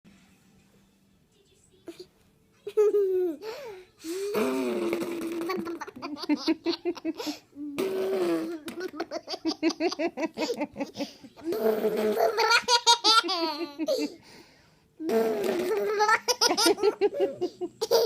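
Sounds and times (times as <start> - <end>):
baby giggling: 2.7 - 3.7, 4.6 - 14.2, 15.6 - 18.0.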